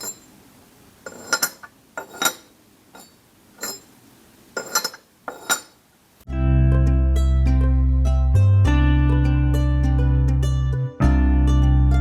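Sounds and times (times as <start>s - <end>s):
teapot lid clinking: 4.6s - 5.7s.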